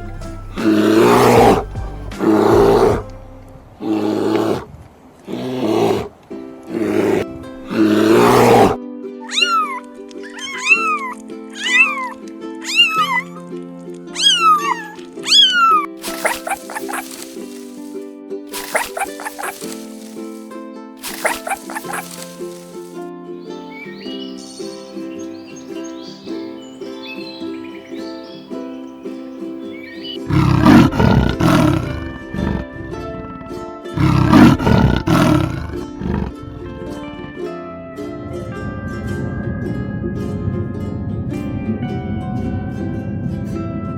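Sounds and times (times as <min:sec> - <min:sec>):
background music: 0:00.0 - 0:04.6, 0:05.3 - 0:43.9
rough roar-like sound: 0:00.6 - 0:03.1, 0:03.8 - 0:08.8, 0:30.2 - 0:37.3
cat meowing: 0:08.2 - 0:13.5, 0:14.1 - 0:17.2.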